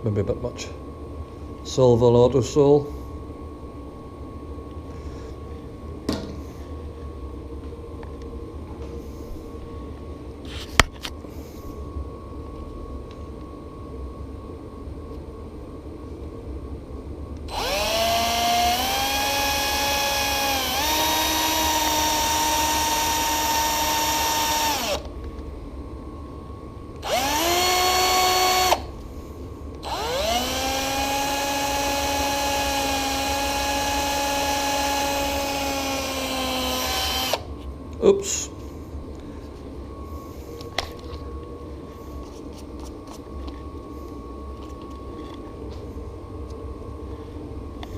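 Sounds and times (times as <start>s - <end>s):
low steady hum: 0.0s - 47.9s
drill whining: 17.5s - 25.1s, 27.0s - 28.9s, 29.8s - 37.5s.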